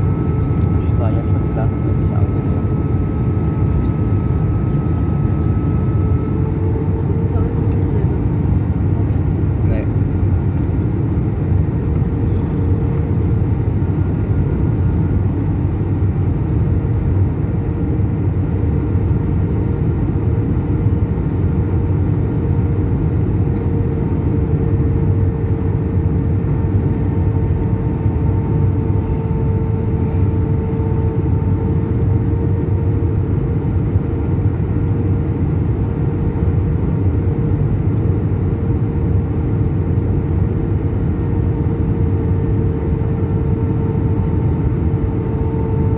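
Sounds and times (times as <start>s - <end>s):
steady droning tone: 0.0s - 10.7s
aircraft cabin engine rumble: 0.0s - 45.9s.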